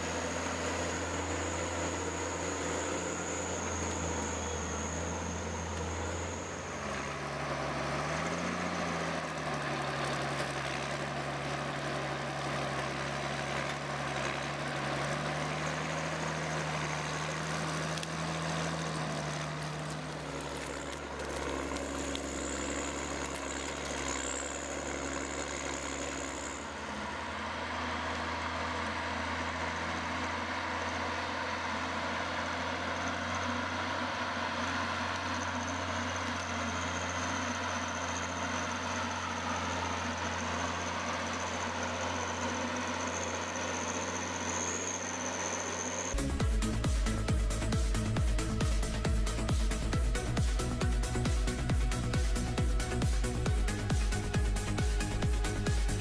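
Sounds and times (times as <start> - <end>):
thin high whine: 0.0 - 7.8
large machine engine humming: 0.0 - 56.0.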